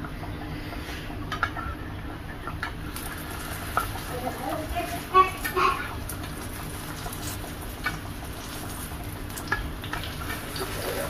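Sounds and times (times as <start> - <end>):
fritters sizzling in oil: 2.2 - 11.0.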